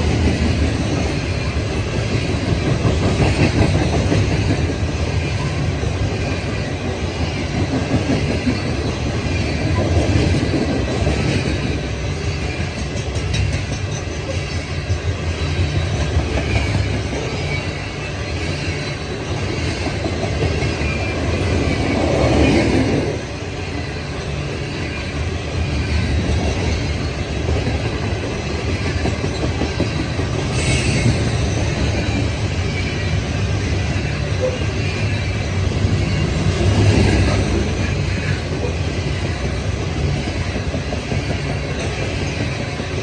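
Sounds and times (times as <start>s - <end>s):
freight train wheels rumbling on rails: 0.0s - 43.0s
high wheel squeal: 8.3s - 12.9s, 13.8s - 28.1s, 28.8s - 39.4s.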